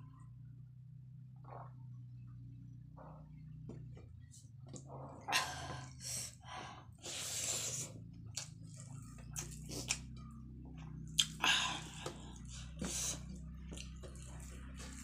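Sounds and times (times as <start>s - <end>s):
low steady hum: 0.0s - 15.0s
wet chewing sounds: 7.1s - 15.0s.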